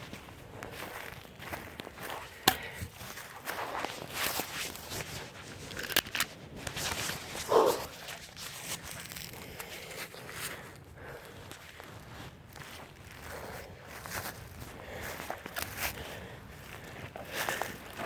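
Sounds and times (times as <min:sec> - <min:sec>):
footsteps crunching through brush: 0:00.0 - 0:18.0.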